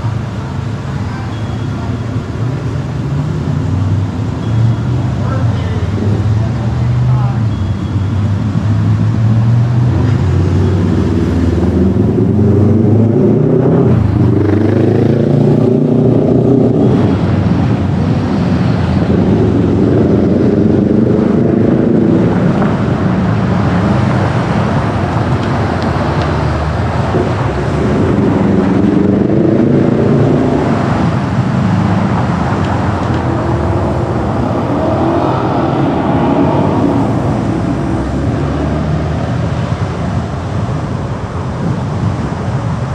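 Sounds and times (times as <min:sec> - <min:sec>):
road noise: 0:00.0 - 0:42.9
car engine accelerating: 0:08.6 - 0:40.6.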